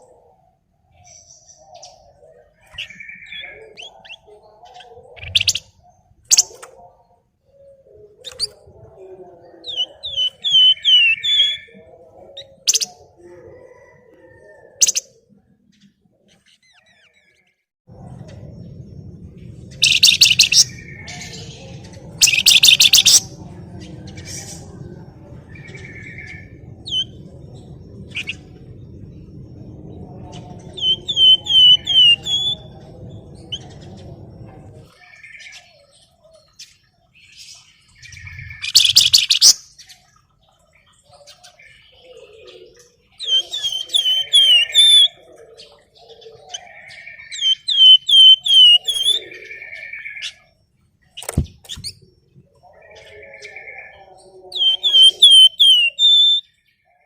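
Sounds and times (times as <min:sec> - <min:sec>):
low rumble: 0:17.9 - 0:22.2, 0:23.2 - 0:35.0
songbird singing buzzing trills: 0:19.7 - 0:23.6, 0:41.6 - 0:56.5.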